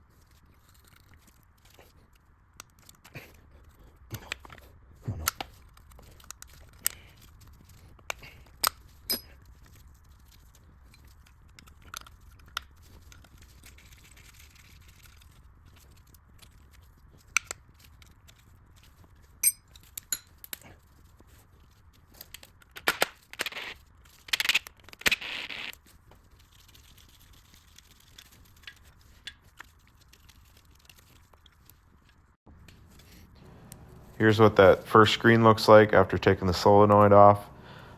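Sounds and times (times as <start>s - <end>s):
metal tool clicks and clinks: 8.6s - 9.5s, 19.4s - 20.6s.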